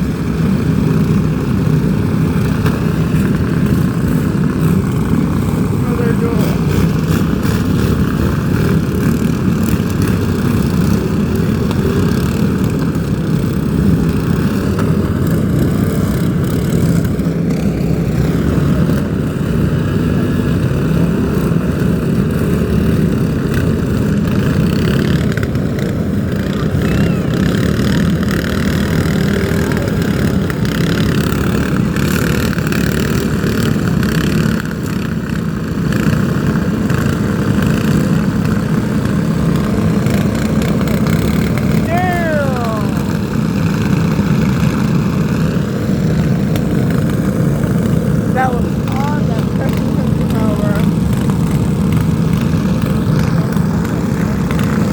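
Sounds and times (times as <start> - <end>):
engine running loudly: 0.0 - 54.9.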